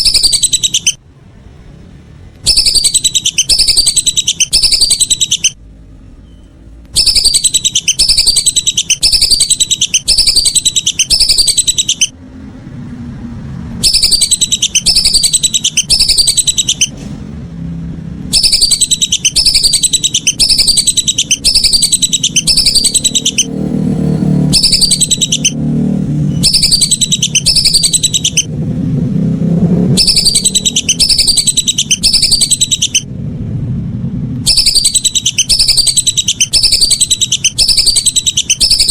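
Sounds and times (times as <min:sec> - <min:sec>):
duck whistled calls: 0:00.0 - 0:01.0, 0:02.4 - 0:05.6, 0:07.0 - 0:12.2, 0:13.8 - 0:17.0, 0:18.3 - 0:23.6, 0:24.4 - 0:25.6, 0:26.4 - 0:28.5, 0:30.0 - 0:33.1, 0:34.5 - 0:38.9.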